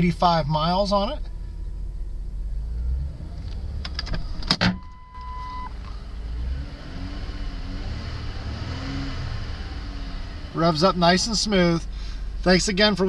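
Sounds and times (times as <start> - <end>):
car engine revving: 5.4 - 12.2.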